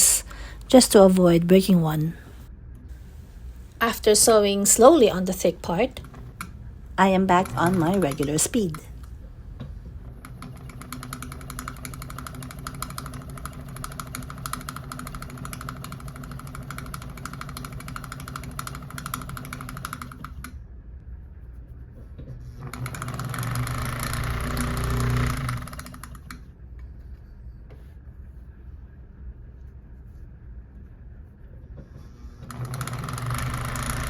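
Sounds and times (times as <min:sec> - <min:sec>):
sewing machine rattling: 0:04.6 - 0:09.1, 0:10.0 - 0:20.5, 0:22.6 - 0:26.4, 0:32.4 - 0:34.0.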